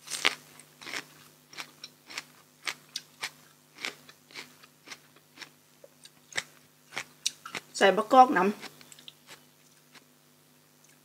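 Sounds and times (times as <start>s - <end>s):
crisp chewing crunches: 0.0s - 7.8s.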